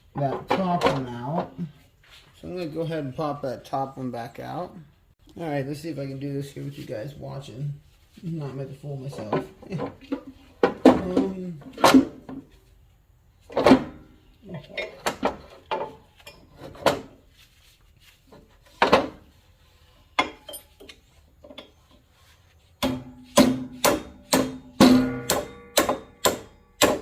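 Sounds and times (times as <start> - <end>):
metal knocks and clinks: 20.2 - 20.9
sharp metal-on-metal strikes: 22.8 - 27.0.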